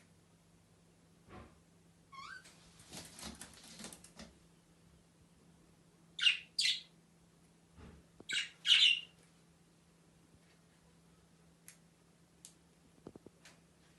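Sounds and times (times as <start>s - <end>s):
faint steady hum: 0.0s - 13.9s
lovebirds squawking: 8.3s - 9.1s.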